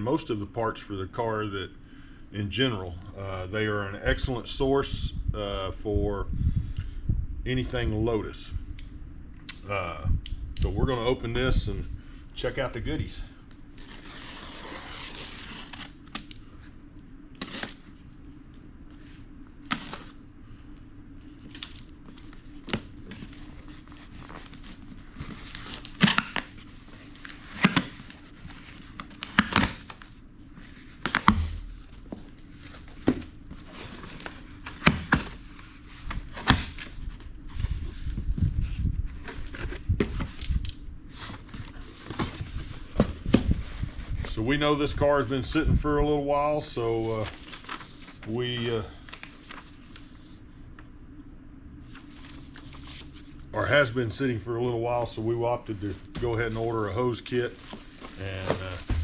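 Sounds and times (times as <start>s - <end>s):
packing material crinkling and tearing: 13.5s - 16.4s, 21.2s - 44.4s, 47.0s - 50.2s, 57.4s - 59.0s
dull thuds: 58.6s - 59.0s.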